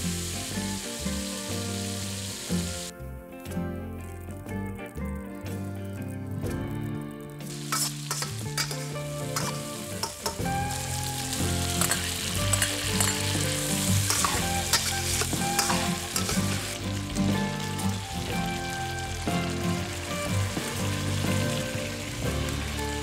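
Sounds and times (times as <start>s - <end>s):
chicken sizzling in a wok: 0.0s - 2.9s, 7.4s - 23.0s
metal spatula scraping a wok: 7.5s - 16.8s.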